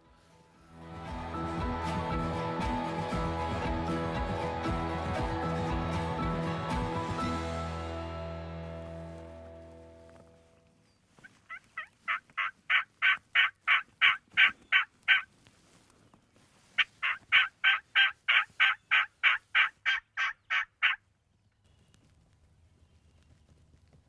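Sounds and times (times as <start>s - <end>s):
turkey yelping: 11.5s - 15.3s, 16.8s - 21.0s.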